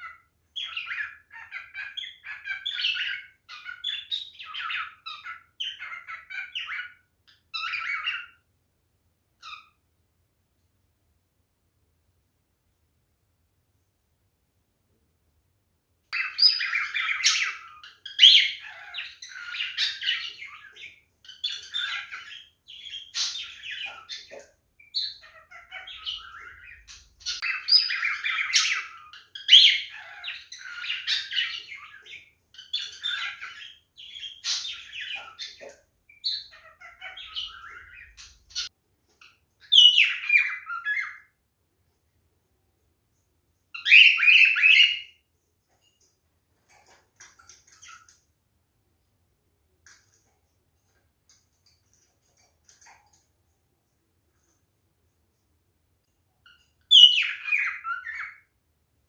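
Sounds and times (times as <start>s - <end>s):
cockatiel singing and chattering: 0.0s - 8.5s, 9.4s - 9.8s, 16.2s - 41.4s, 43.7s - 45.2s, 56.4s - 58.5s.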